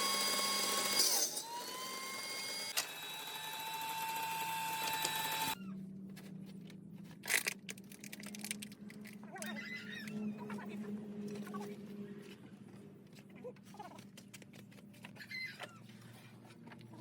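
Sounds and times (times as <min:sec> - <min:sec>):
electric power tool running: 0:00.0 - 0:05.6.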